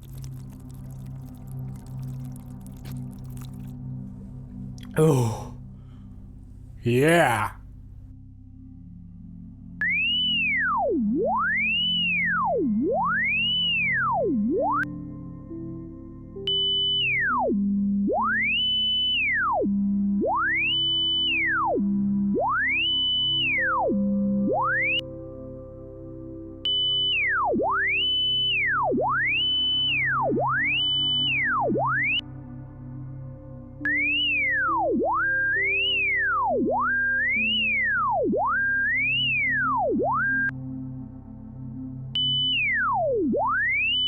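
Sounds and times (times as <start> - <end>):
quiet background music: 40.0 - 44.0.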